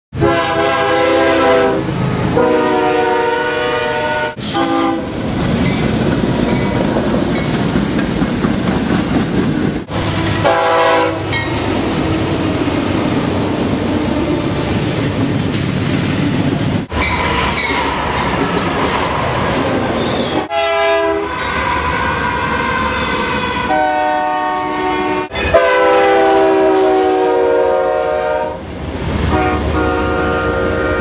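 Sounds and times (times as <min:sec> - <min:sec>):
locomotive horn blasts: 0:00.1 - 0:05.2, 0:09.9 - 0:11.5, 0:20.5 - 0:28.6, 0:29.3 - 0:31.0
freight cars rumbling and clattering: 0:04.4 - 0:10.4, 0:11.2 - 0:20.5.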